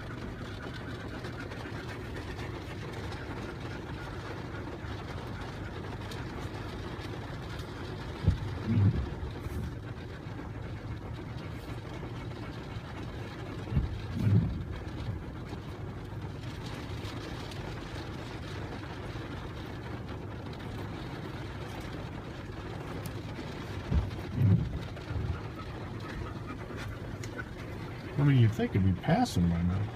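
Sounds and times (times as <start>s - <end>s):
car engine and road noise: 0.0s - 29.9s.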